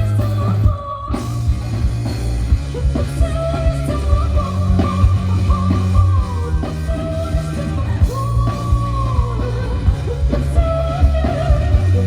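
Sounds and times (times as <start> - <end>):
live rock band playing: 0.0 - 12.0
person singing long notes: 2.6 - 12.0.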